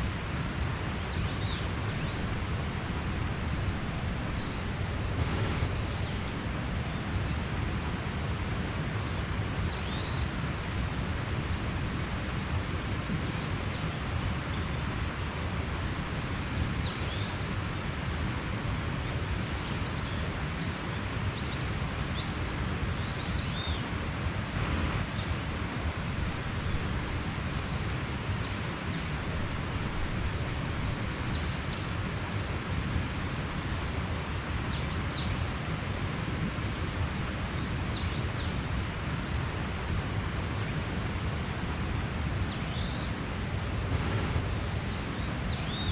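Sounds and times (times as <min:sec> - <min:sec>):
mountain stream rushing: 0:00.0 - 0:45.9
small birds chirping: 0:37.5 - 0:39.3, 0:40.2 - 0:45.9.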